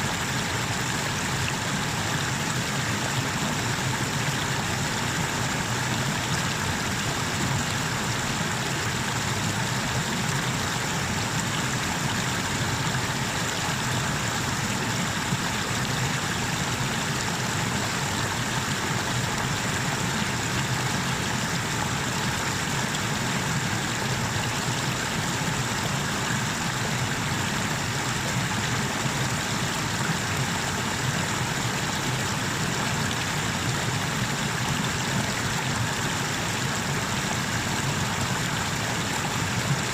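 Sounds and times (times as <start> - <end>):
water rushing over waterfall: 0.0 - 39.9.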